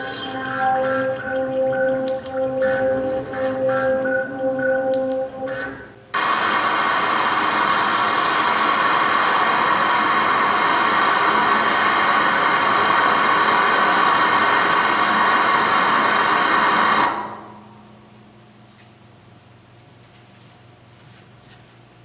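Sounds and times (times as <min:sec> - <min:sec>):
loud steady hissing: 0:06.1 - 0:17.7.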